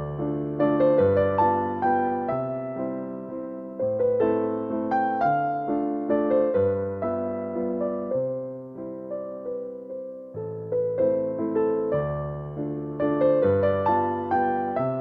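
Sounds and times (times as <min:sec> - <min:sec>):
gentle piano piece: 0:00.0 - 0:15.0.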